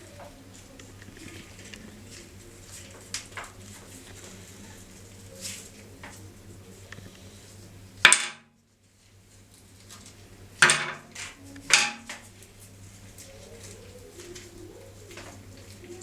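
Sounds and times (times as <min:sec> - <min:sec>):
hard objects clattering: 0:08.0 - 0:08.5, 0:09.9 - 0:14.5.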